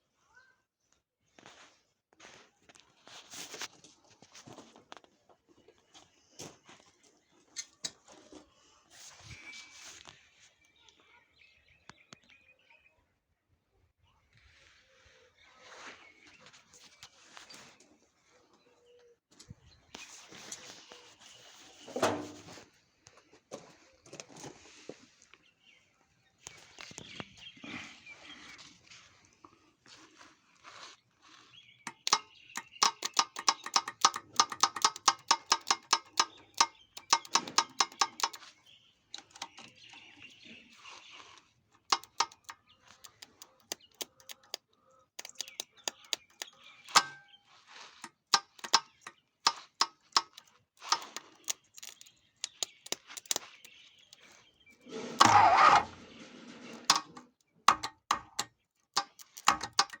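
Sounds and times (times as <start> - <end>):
clicks and metal knocks: 21.9 - 22.6, 31.9 - 38.4, 39.1 - 39.9, 41.9 - 44.6, 45.2 - 47.3, 48.0 - 53.7, 56.6 - 60.0
fast regular clicks: 31.9 - 38.4, 39.2 - 39.8, 41.9 - 47.2, 48.0 - 54.3, 56.9 - 60.0.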